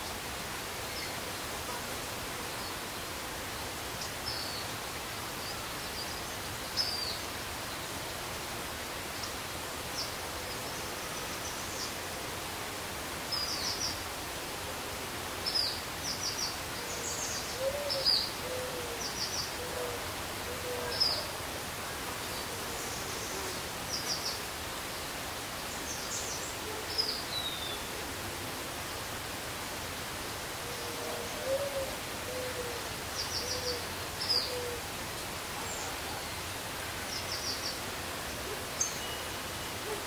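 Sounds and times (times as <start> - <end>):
steady hiss: 0.0 - 40.0
low hooting bird calls: 30.7 - 34.9.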